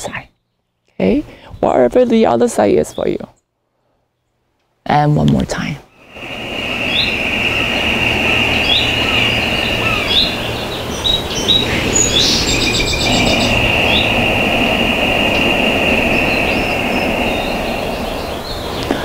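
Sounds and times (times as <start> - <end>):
small birds chirping: 2.6 - 3.5, 6.0 - 19.0
steady high-pitched whine: 6.0 - 19.0
low rumble: 6.1 - 19.0.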